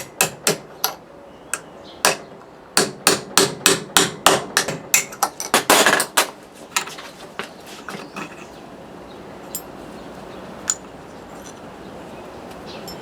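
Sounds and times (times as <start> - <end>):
metallic clinks with ring: 9.5 - 9.8.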